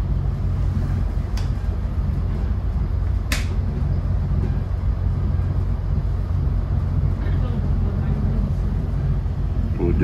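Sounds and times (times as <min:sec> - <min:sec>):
train rumble from inside car: 0:00.0 - 0:10.0.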